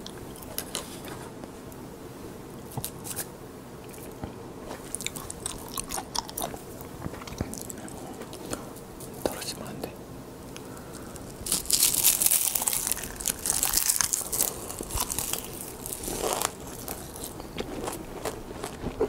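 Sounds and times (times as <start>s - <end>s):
seaweed sheets crunching: 10.6s - 19.0s.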